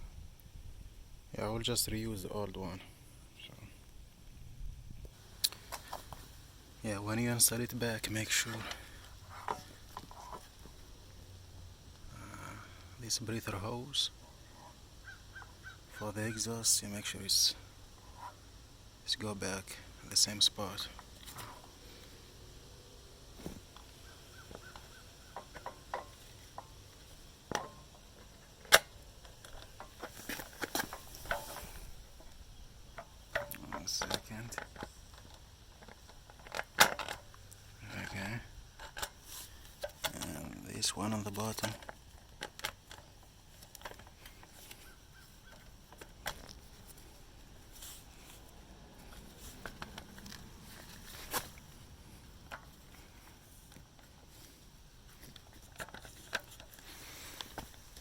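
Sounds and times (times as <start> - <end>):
tools clicking and knocking on parts: 24.5 - 26.8
tools and parts clicking: 27.5 - 31.8, 55.2 - 58.0.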